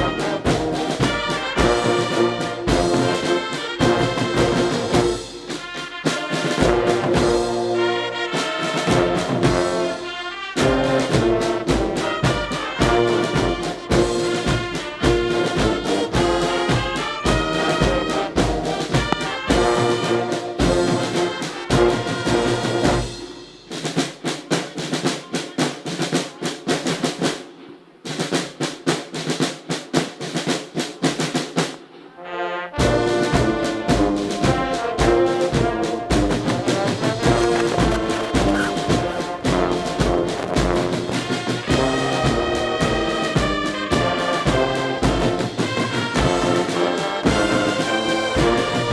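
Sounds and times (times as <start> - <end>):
military brass band playing: 0.0 - 24.9, 32.1 - 48.9
drum beats: 0.0 - 32.1, 32.8 - 48.9
snare drum cadence: 16.7 - 21.0, 34.4 - 43.8.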